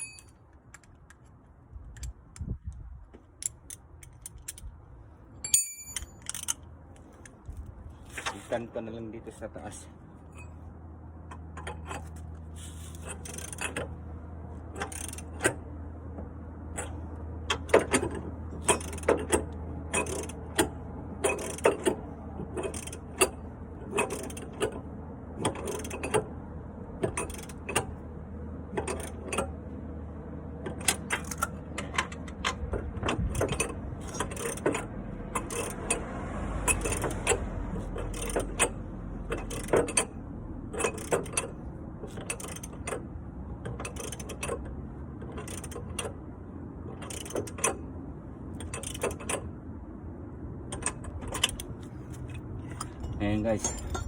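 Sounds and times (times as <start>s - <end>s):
ratchet wrench clicking: 5.5s - 6.6s, 12.8s - 13.8s, 14.8s - 15.6s, 18.6s - 19.2s, 19.9s - 20.7s, 21.3s - 22.0s, 22.6s - 24.5s, 25.5s - 26.2s, 27.2s - 27.8s, 33.4s - 36.0s, 38.0s - 40.1s, 40.7s - 43.0s, 43.8s - 44.6s, 45.4s - 46.1s.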